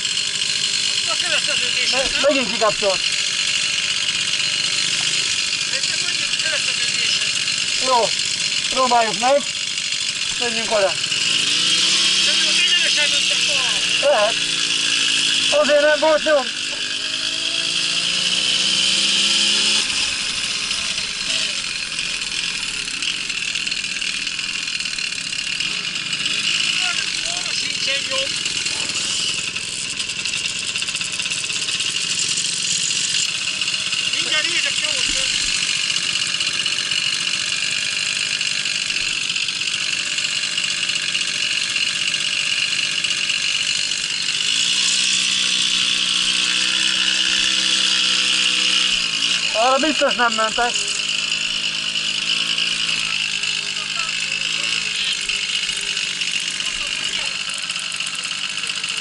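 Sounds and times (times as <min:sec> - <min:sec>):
moped engine: 0:00.0 - 0:59.0.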